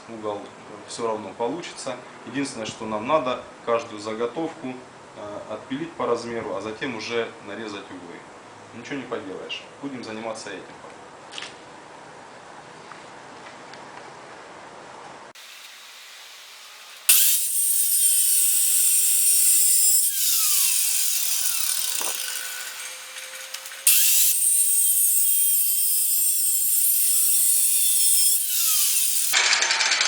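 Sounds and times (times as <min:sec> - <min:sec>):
angle grinder cutting steel: 0:15.4 - 0:30.0.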